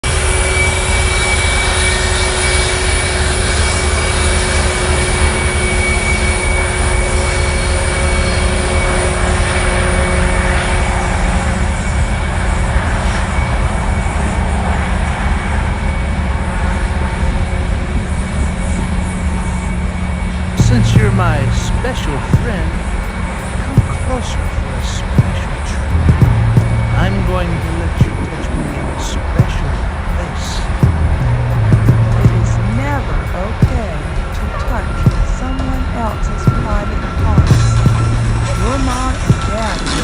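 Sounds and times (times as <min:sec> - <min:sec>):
freight train rumbling and rattling: 0:00.0 - 0:40.0.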